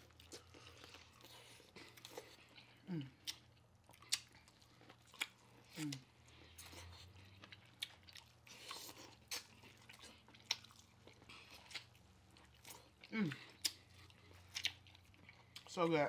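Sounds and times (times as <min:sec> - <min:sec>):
chewing corn on the cob: 0:00.0 - 0:16.0
person humming mmm: 0:02.8 - 0:03.2, 0:13.1 - 0:13.5.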